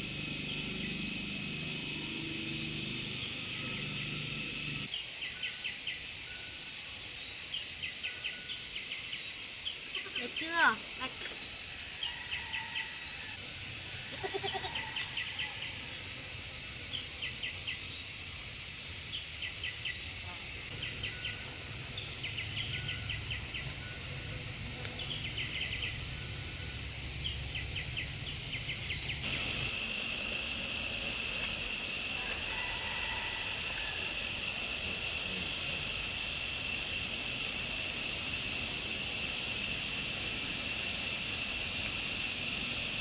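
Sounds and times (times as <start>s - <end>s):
rapid chirps: 0.0s - 4.9s, 27.6s - 32.7s
high insect drone: 0.0s - 43.0s.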